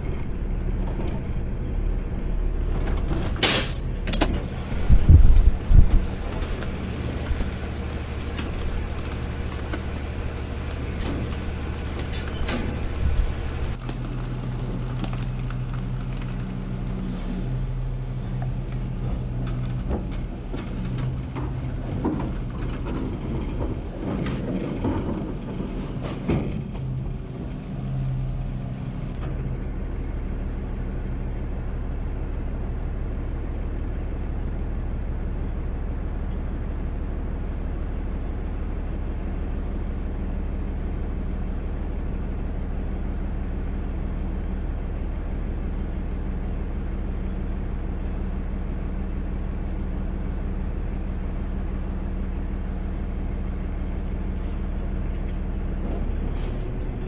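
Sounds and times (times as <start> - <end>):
garbage truck engine droning: 0.1 - 5.0, 6.2 - 57.0
short sharp clicks: 3.4 - 4.3.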